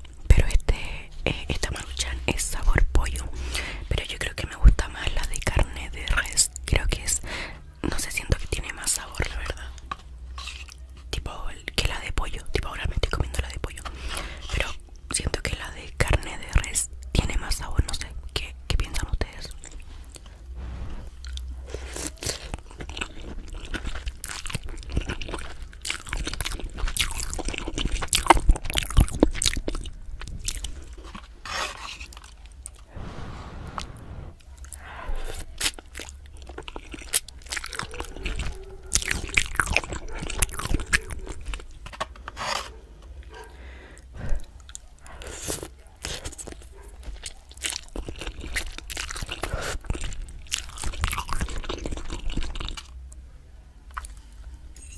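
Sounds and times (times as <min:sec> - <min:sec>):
person chewing: 0:19.4 - 0:33.0, 0:33.7 - 0:42.7, 0:43.3 - 0:53.0.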